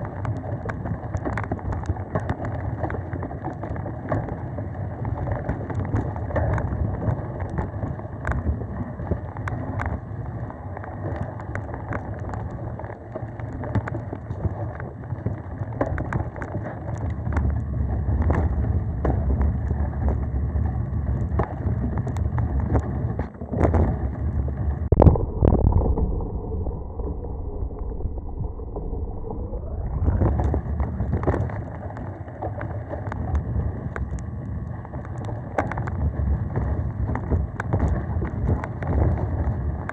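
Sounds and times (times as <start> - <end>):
wind rushing over microphone: 17.0 - 39.9.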